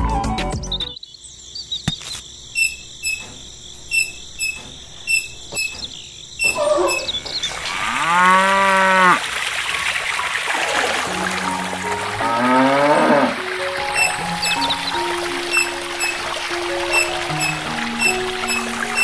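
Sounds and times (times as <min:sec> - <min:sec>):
crickets chirping: 0:00.9 - 0:19.0
cow mooing: 0:06.5 - 0:09.2, 0:12.0 - 0:14.6.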